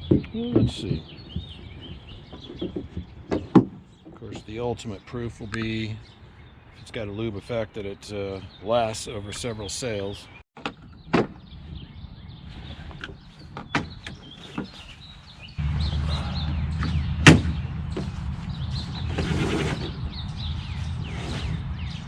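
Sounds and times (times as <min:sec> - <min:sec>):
rigging clicks and knocks: 0:00.0 - 0:04.6.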